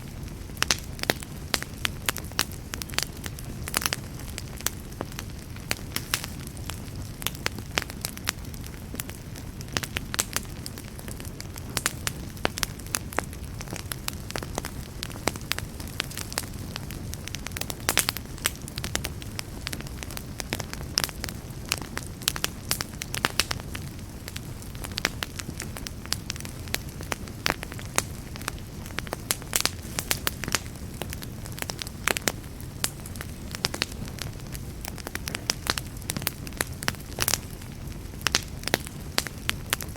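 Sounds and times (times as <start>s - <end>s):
campfire flames rumbling: 0.0s - 39.9s
fire crackling and popping: 0.0s - 39.9s.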